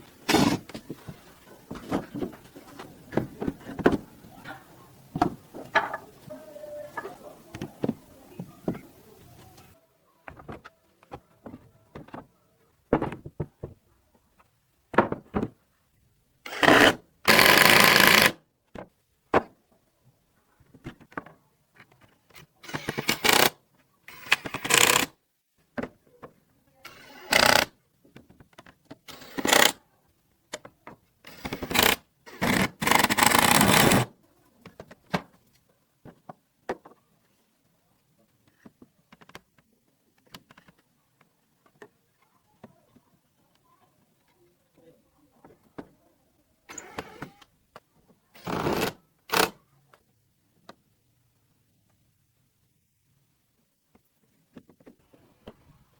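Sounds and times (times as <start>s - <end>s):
power tool bursts on wood: 0.2s - 0.6s, 16.5s - 18.4s, 22.6s - 23.5s, 24.1s - 25.1s, 26.9s - 27.7s, 29.1s - 29.8s, 31.3s - 34.1s, 46.7s - 47.4s, 48.4s - 49.6s.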